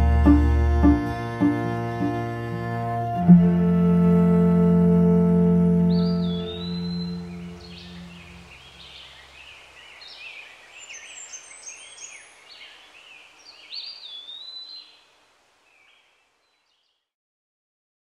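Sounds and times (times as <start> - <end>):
soft outdoor hiss: 0.0 - 17.1
songbirds chirping and singing: 5.2 - 15.0.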